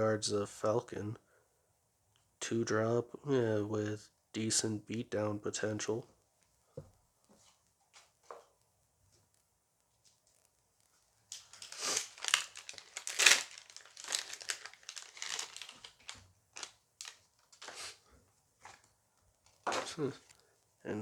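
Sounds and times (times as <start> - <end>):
foil pack crinkling and tearing: 11.3 - 18.0.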